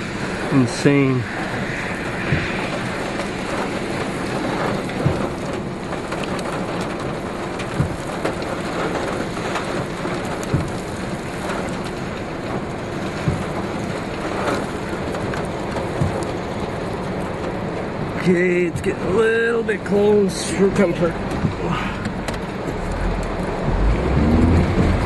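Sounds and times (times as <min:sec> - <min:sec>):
rain: 0:00.0 - 0:25.0
wind: 0:00.0 - 0:25.0.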